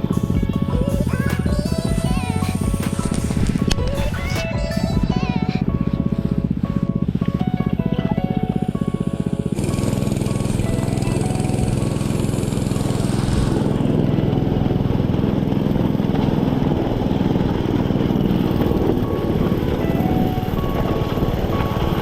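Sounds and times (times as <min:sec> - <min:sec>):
dirt bike engine running: 0:00.0 - 0:22.0.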